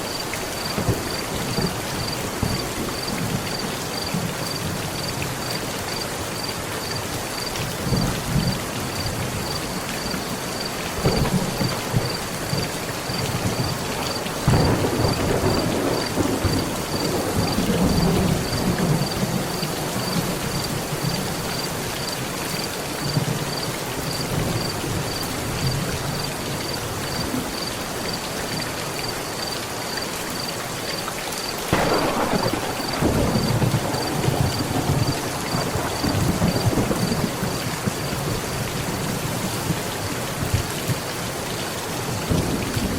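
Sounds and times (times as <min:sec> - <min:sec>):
heavy rain on a metal roof: 0:00.0 - 0:42.9
thunder rumbling: 0:10.9 - 0:21.4, 0:31.7 - 0:39.8.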